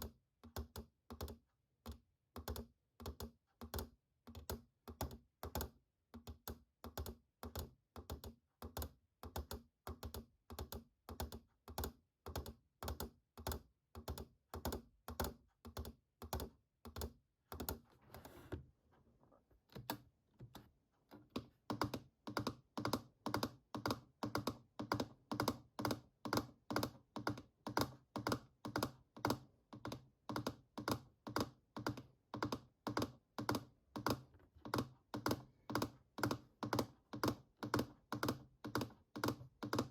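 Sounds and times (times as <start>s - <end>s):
fingers tapping keyboard keys: 19.8s - 39.9s.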